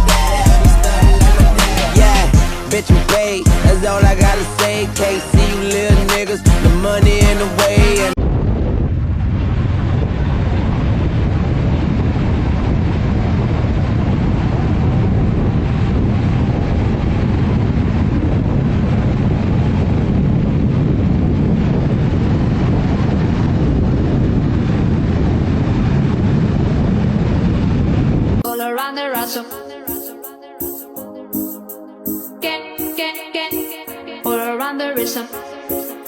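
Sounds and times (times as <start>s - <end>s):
wind buffeting the microphone: 8.2s - 28.4s.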